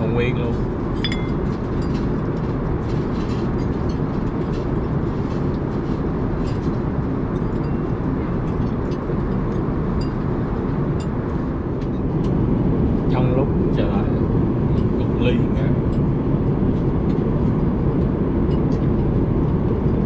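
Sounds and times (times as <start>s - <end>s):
airplane cabin rushing noise: 0.0s - 20.0s
tableware clinking: 1.0s - 2.0s.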